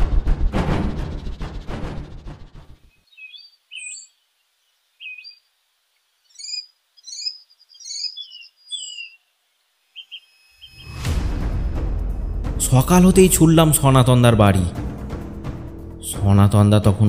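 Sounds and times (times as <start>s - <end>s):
low music cue: 0.0s - 2.8s, 10.8s - 17.0s
birds chirping: 2.4s - 11.0s.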